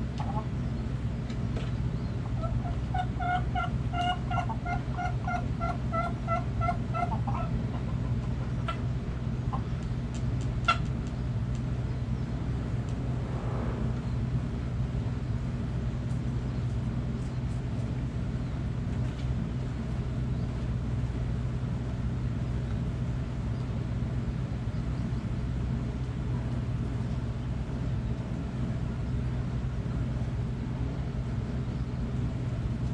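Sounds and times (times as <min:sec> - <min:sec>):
engine humming: 0:00.0 - 0:32.9.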